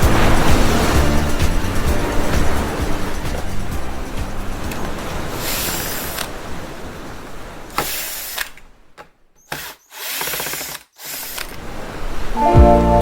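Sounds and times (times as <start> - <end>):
small power tool running: 9.5 - 11.5.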